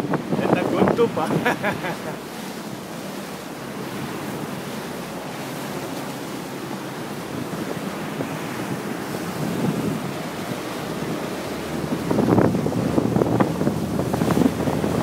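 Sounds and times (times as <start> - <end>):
rushing water and waves: 0.0 - 15.0
wind buffeting microphone: 0.0 - 15.0.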